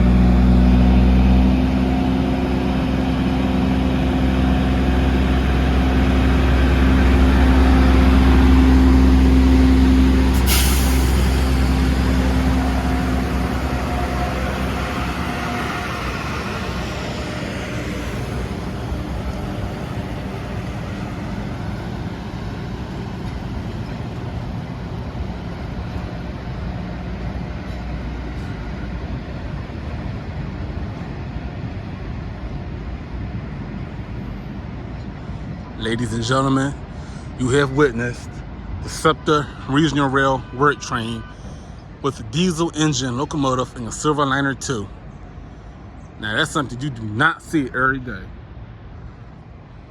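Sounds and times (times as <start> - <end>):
train rolling on rails: 0.0 - 40.6
diesel locomotive engine: 0.0 - 49.9
sharp air hiss: 10.3 - 13.0.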